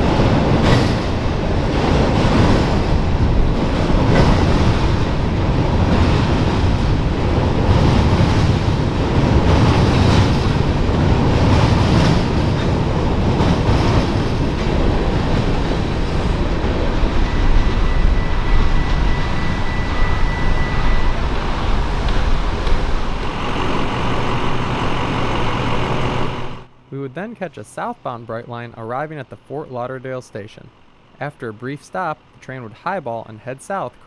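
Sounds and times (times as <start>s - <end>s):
train wheels rumbling on rail: 0.0s - 26.9s
thin high tone: 17.0s - 21.9s.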